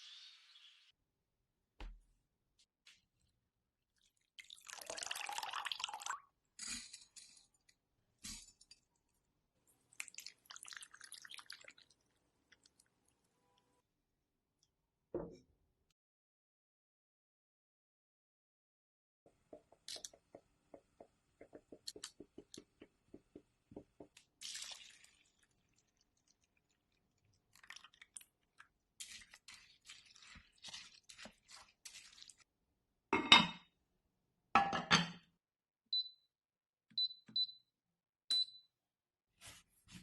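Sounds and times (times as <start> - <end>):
soft rhythmic tapping: 19.3 - 24.2.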